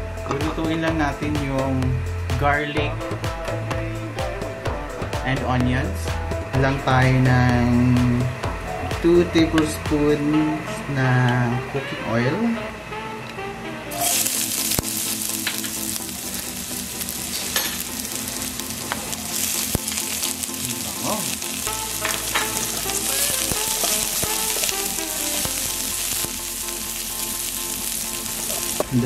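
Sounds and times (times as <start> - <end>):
garlic and onions sizzling in oil: 13.9 - 29.0.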